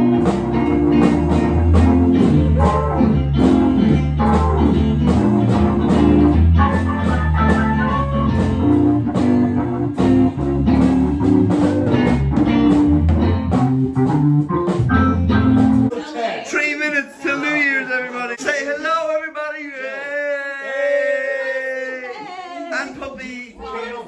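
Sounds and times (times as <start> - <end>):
bass: 0.0 - 15.9
electric guitar: 0.0 - 15.9
steady drum beat: 0.0 - 15.9.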